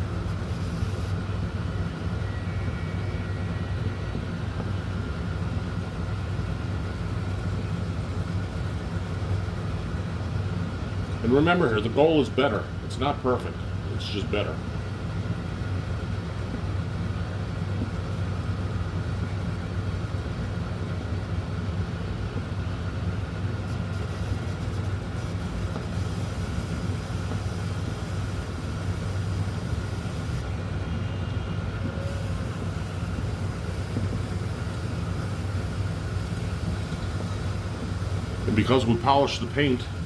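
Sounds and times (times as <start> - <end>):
low mechanical hum: 0.0 - 40.0.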